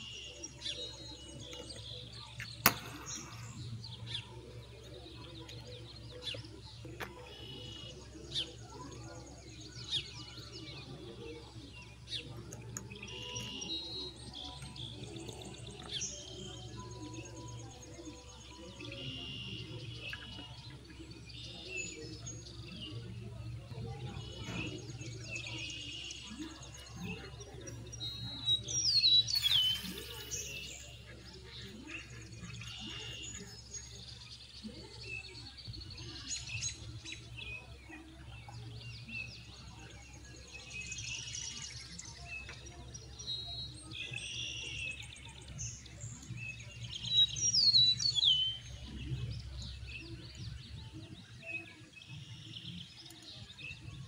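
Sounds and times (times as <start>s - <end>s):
songbirds chirping: 0.0s - 54.0s
falling whistled bird calls: 28.9s - 30.8s.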